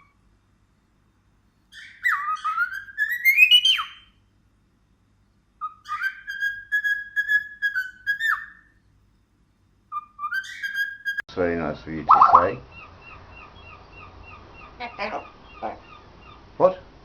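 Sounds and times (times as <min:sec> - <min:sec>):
parrot whistling a tune: 0:01.7 - 0:04.1, 0:05.6 - 0:08.7, 0:09.9 - 0:11.2.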